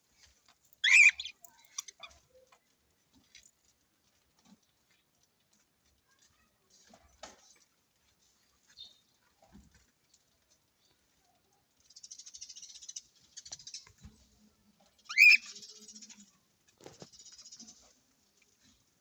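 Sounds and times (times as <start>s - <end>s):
small birds clicking: 0.2s - 6.0s, 9.9s - 18.9s
high bird chattering: 0.8s - 2.1s, 15.1s - 16.0s.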